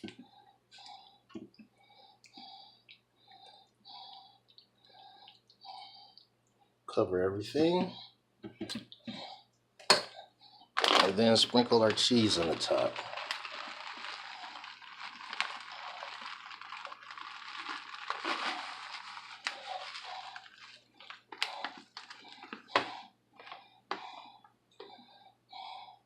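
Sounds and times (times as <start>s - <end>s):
cheese rustling as sprinkled: 10.8s - 22.9s.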